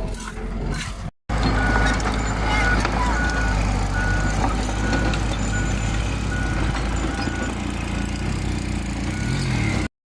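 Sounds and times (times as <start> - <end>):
truck engine running: 0.0 - 9.9
reversing beeper beeps: 1.4 - 8.1, 9.0 - 9.9.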